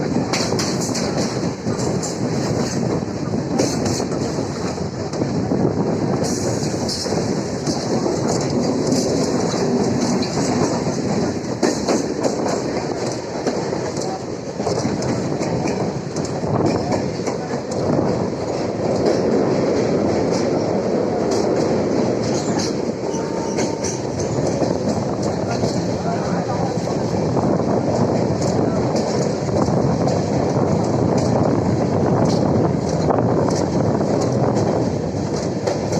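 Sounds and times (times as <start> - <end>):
train wheels rumbling on track: 0.0 - 35.9
wheels clacking over rail joints: 0.0 - 35.9.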